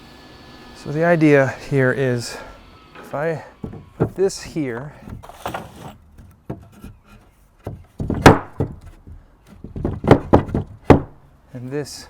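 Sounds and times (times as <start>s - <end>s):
lumber knocking together: 3.6s - 11.2s.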